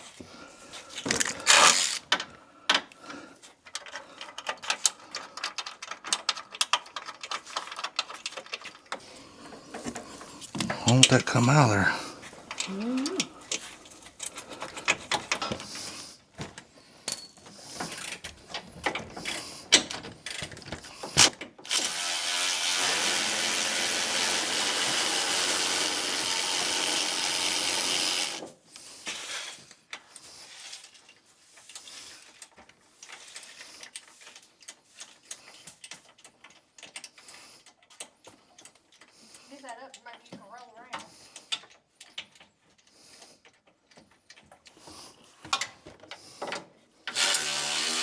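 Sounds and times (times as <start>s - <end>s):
hand tools clicking on metal: 1.0s - 2.3s
power tool running: 1.2s - 2.0s, 21.7s - 28.4s, 47.1s - 48.0s.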